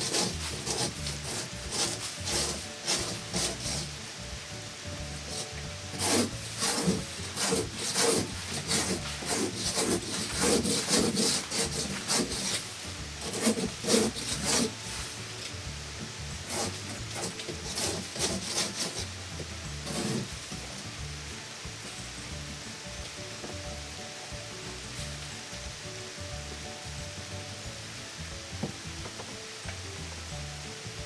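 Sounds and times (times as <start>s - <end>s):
hand tool scraping a wall: 0.0s - 4.0s, 5.1s - 15.6s, 16.2s - 20.6s.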